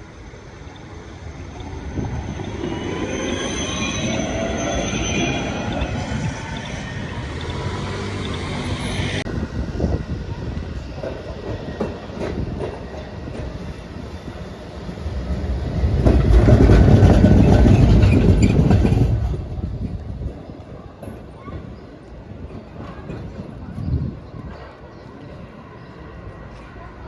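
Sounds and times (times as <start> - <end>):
tram wheel squeal: 0.0 - 19.9
tram running rumble: 0.0 - 27.0
wheels clicking over rail joints: 15.0 - 20.4.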